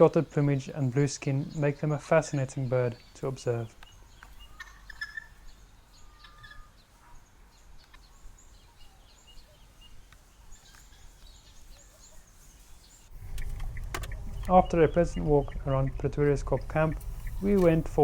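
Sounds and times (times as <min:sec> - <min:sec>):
bird chirps: 0:00.0 - 0:18.0
guineafowl calling: 0:03.8 - 0:07.2, 0:13.3 - 0:17.9.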